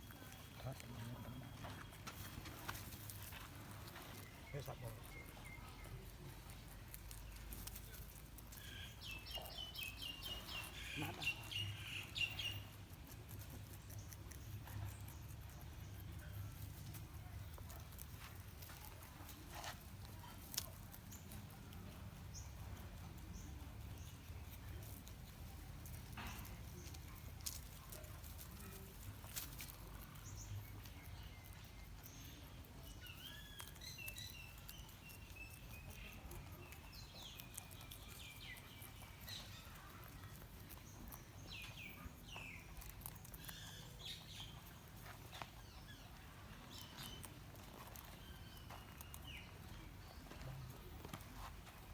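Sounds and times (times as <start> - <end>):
birds chirping: 0.0 - 7.5, 8.5 - 12.8, 30.0 - 51.9
rabbits chewing: 0.0 - 51.9.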